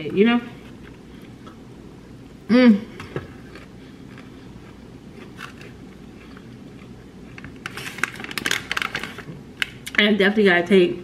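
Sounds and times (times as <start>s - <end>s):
person chewing salad: 2.9s - 9.3s
crisp crunches: 3.4s - 9.9s.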